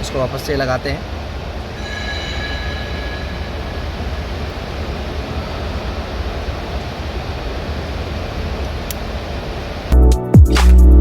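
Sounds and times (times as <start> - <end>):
low machine rumble and hiss: 0.0 - 10.0
faint high steady tone: 1.0 - 8.4.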